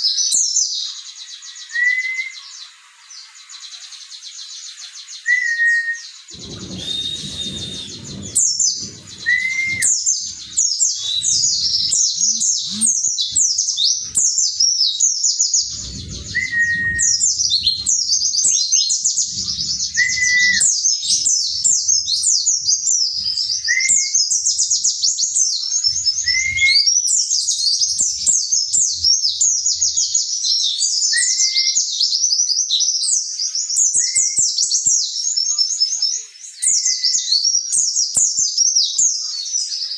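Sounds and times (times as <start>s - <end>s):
bird twittering song: 0.0s - 39.9s
short rising whistle: 5.4s - 12.4s, 15.7s - 18.2s, 19.4s - 20.8s
low rustling noise: 6.3s - 14.4s, 15.5s - 23.8s.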